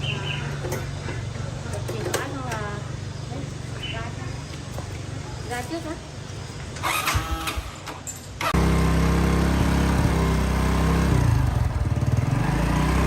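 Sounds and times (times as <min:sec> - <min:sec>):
motorbike engine idling: 0:08.5 - 0:13.0.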